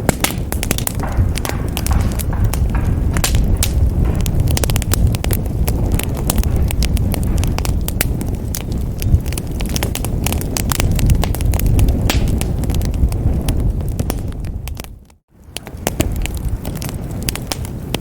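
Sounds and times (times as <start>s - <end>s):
sharp pops and snaps: 0.0s - 13.1s
wood fire crackling: 0.0s - 18.0s.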